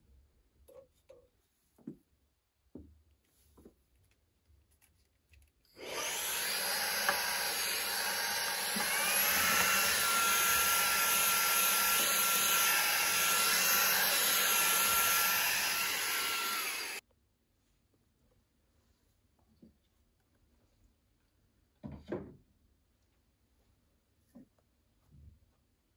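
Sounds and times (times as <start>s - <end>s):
vacuum cleaner running: 5.8s - 17.0s.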